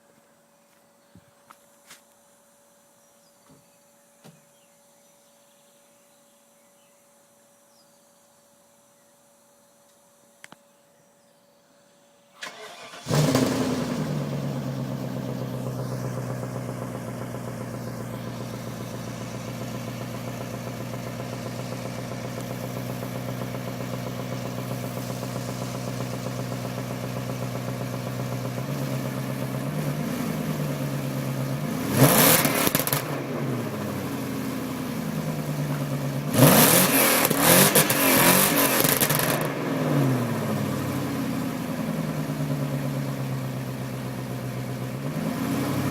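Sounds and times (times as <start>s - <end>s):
car engine revving: 12.4s - 45.9s
car engine starting and idling: 12.4s - 45.9s.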